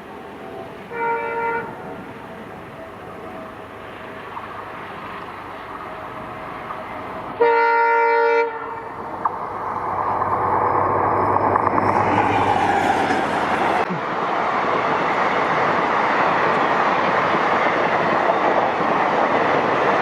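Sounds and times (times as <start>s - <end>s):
train rumble with wheel clatter: 0.0s - 20.0s
locomotive horn blast: 0.9s - 1.8s, 7.4s - 8.9s.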